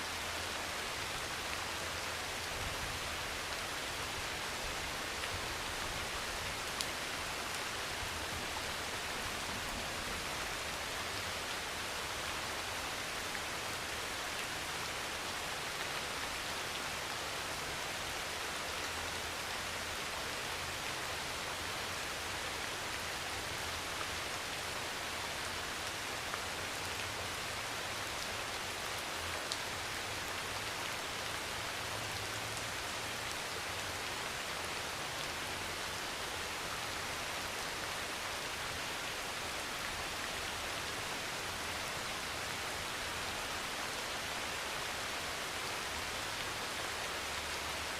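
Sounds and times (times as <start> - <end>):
heavy rain on a metal roof: 0.0 - 47.9.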